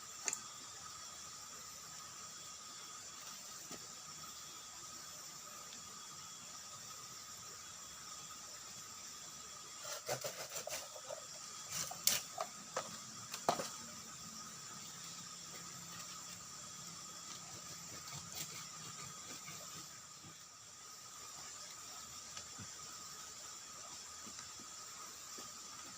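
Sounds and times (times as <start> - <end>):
blade cutting bamboo: 9.8 - 13.8.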